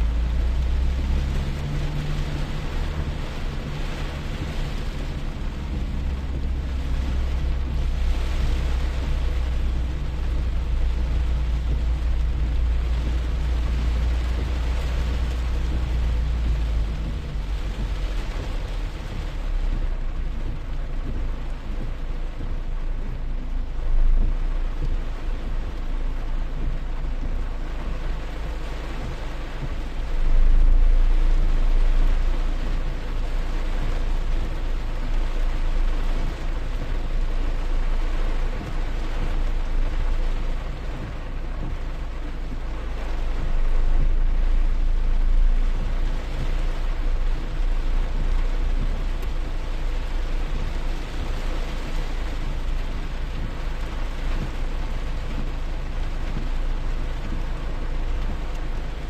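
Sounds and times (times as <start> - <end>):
low rumble: 0.0 - 59.0
steady rain falling: 0.0 - 59.0.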